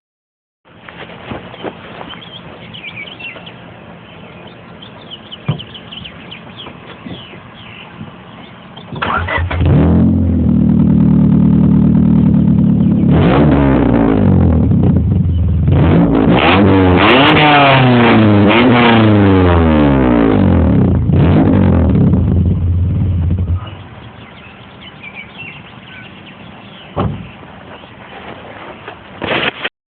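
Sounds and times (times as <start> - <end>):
car engine starting and revving: 8.4 - 27.4.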